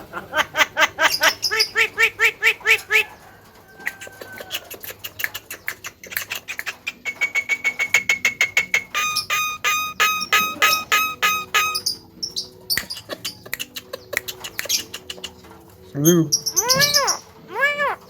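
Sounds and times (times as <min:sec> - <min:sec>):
bird clicks and whistle: 0:03.8 - 0:15.4
myna calling: 0:08.7 - 0:12.4, 0:16.0 - 0:18.0.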